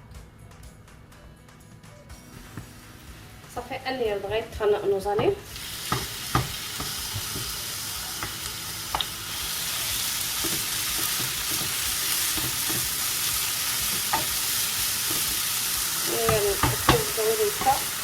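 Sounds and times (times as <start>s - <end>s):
vegetables sizzling in a frying pan: 2.4s - 18.0s
utensil knocking against a pan: 5.2s - 7.5s, 16.2s - 17.8s.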